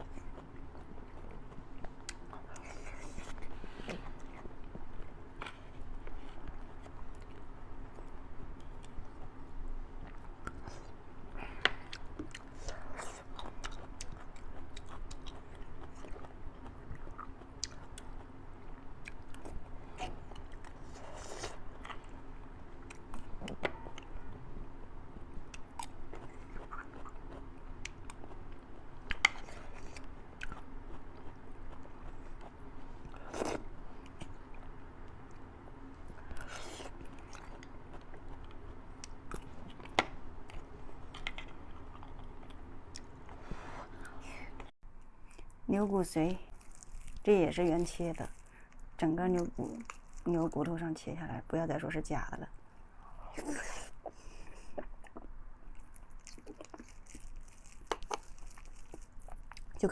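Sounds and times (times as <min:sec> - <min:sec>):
chewing and biting: 0:11.7 - 0:24.1, 0:25.4 - 0:35.4, 0:36.2 - 0:43.4, 0:46.5 - 0:50.3, 0:54.0 - 0:59.8.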